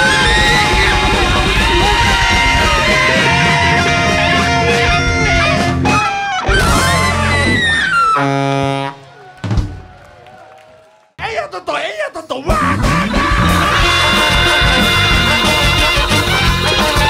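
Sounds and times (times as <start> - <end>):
guitar: 0.0 - 8.4, 12.5 - 17.0
big band playing free jazz: 0.0 - 10.0, 12.5 - 17.0.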